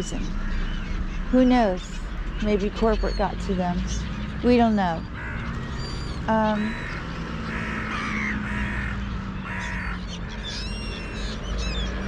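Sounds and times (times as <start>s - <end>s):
small birds chirping: 0.0s - 12.0s
crows cawing: 4.2s - 12.0s.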